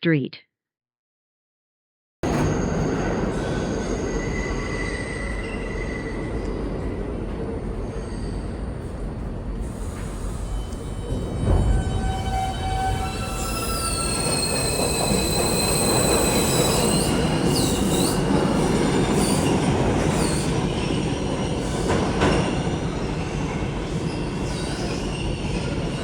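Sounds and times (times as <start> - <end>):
subway train rumbling: 2.2 - 26.0
steel wheel squeal: 2.4 - 7.0, 7.8 - 8.9, 9.8 - 20.9.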